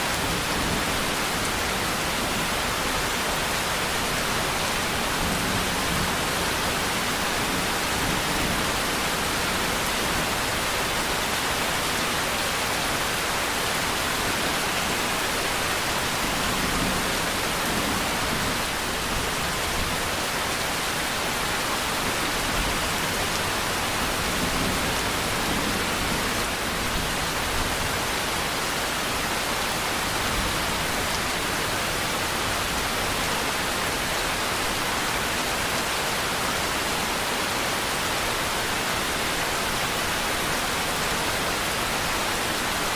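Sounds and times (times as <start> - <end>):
steady rain hiss: 0.0 - 42.9.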